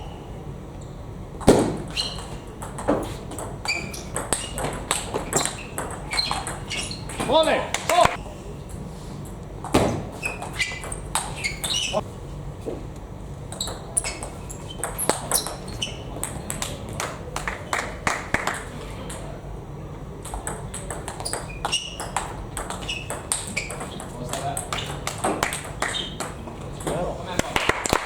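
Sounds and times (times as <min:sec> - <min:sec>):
table tennis balls clicking: 0:01.4 - 0:08.2, 0:09.6 - 0:12.0, 0:13.5 - 0:19.4, 0:20.2 - 0:28.0
short high squeaks: 0:01.8 - 0:02.4, 0:03.6 - 0:07.2, 0:10.2 - 0:12.0, 0:13.5 - 0:16.1, 0:21.2 - 0:24.1, 0:25.8 - 0:26.3.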